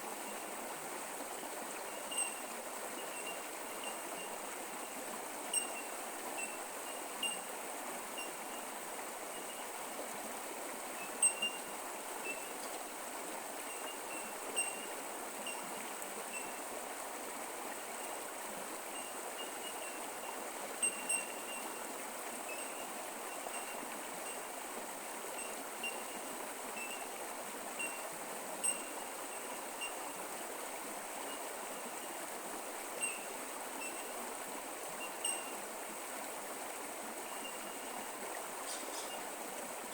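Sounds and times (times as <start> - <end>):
creek water over rocks: 0.0 - 39.9.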